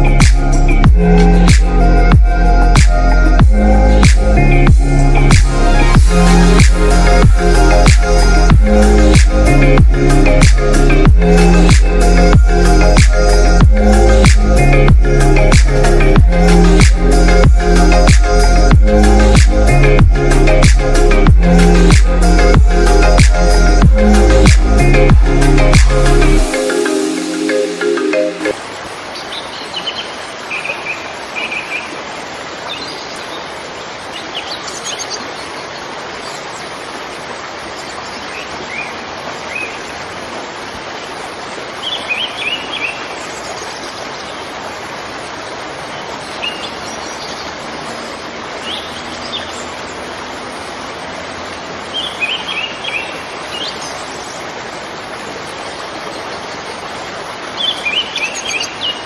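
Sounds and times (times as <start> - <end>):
waterfall rushing: 0.0 - 59.0
birds chirping: 29.1 - 36.8, 45.5 - 54.6, 55.8 - 59.0.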